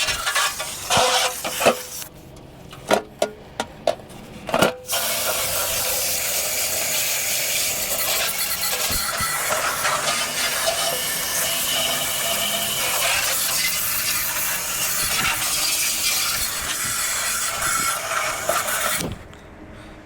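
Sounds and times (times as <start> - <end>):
cleaning spray hissing: 4.9 - 19.0.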